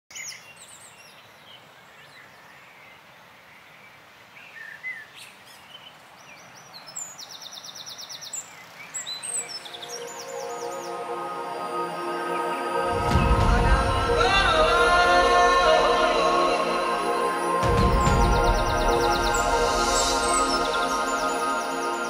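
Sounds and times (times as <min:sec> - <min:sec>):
faint outdoor hiss: 0:00.1 - 0:22.0
birds chirping and whistling: 0:07.3 - 0:22.0
bird trill: 0:08.9 - 0:11.6
music: 0:09.5 - 0:22.0.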